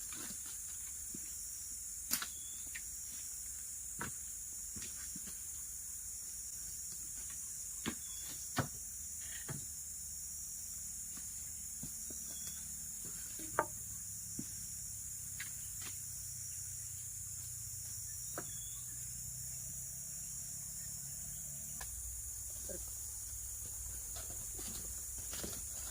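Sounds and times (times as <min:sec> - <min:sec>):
insects chorus: 0:00.0 - 0:25.9.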